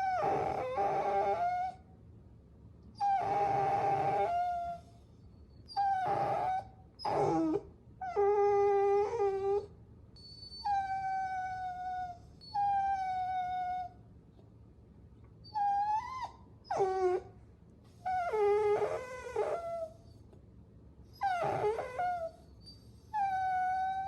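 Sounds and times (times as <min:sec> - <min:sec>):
puppy whining: 0:00.0 - 0:01.9, 0:03.0 - 0:14.0, 0:15.4 - 0:20.4, 0:21.1 - 0:24.0.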